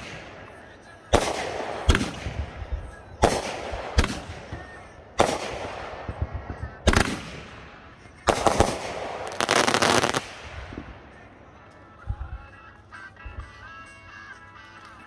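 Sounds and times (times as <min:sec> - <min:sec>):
fireworks bangs with crackle: 0:08.2 - 0:10.9.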